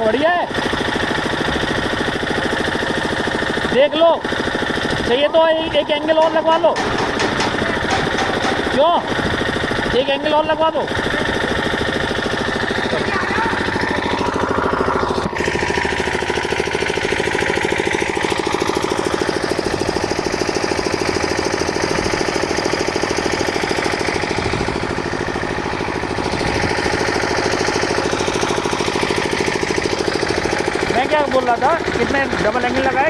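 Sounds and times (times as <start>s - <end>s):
machine engine knocking: 0.0s - 33.0s
higher hum shifting in pitch: 5.1s - 30.6s.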